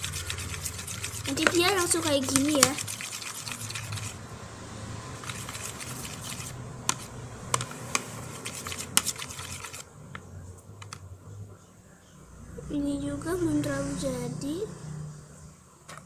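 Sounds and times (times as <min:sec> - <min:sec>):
wet squishing and scraping: 0:00.0 - 0:04.2, 0:05.2 - 0:09.8.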